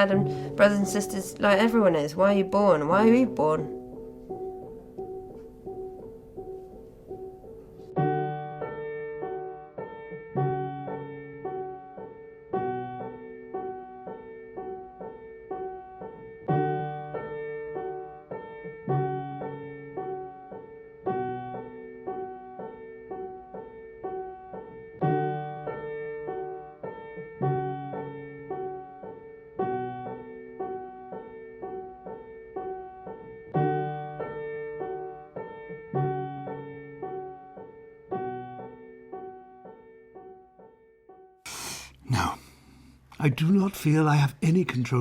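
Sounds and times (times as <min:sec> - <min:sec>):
slow piano music: 0:00.0 - 0:45.0.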